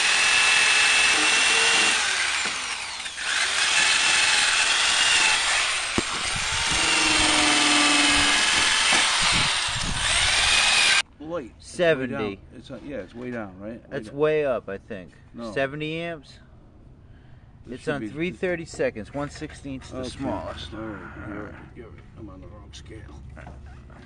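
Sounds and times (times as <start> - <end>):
power grinder grinding steel: 0.0 - 11.0.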